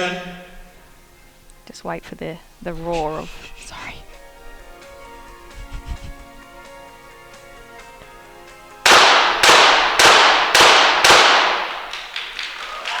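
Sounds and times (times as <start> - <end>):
pistol shots echoing: 8.8 - 12.9.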